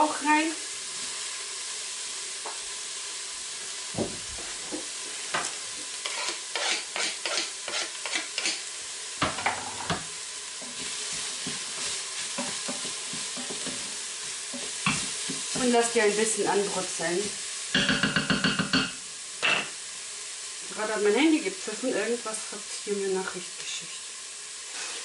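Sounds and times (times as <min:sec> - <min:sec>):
vegetables sizzling in oil: 0:00.0 - 0:25.0
knocks and scrapes of stirring: 0:10.6 - 0:13.9.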